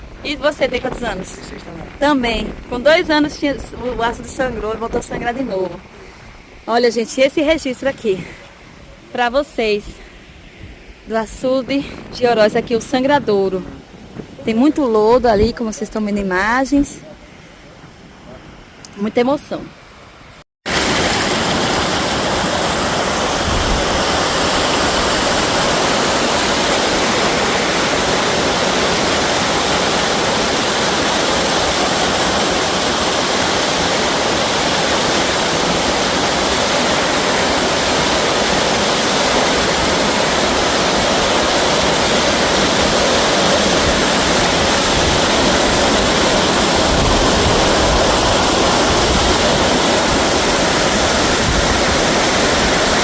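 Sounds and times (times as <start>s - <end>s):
water rushing over spillway: 20.7s - 53.0s.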